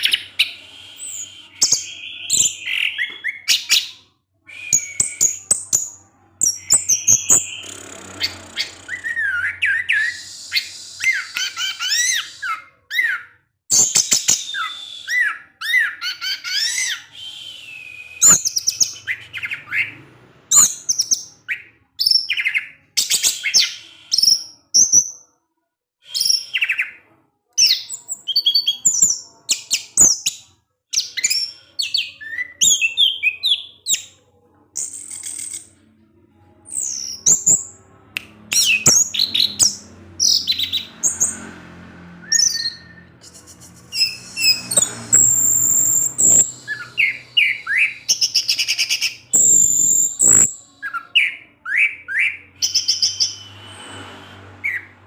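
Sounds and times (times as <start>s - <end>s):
thrush singing whistles and chirps: 0.0s - 5.8s, 6.4s - 25.2s, 42.2s - 54.9s.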